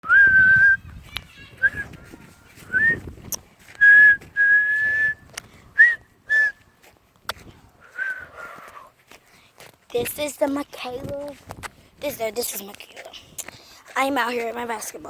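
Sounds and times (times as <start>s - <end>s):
person whistling: 0.0s - 0.8s, 2.7s - 3.0s, 3.8s - 5.2s, 5.8s - 6.6s, 8.0s - 8.3s.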